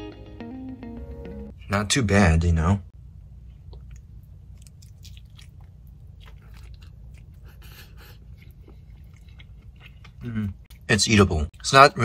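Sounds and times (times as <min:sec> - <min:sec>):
low steady hum: 0:00.9 - 0:12.0
crunchy chewing: 0:03.6 - 0:10.9.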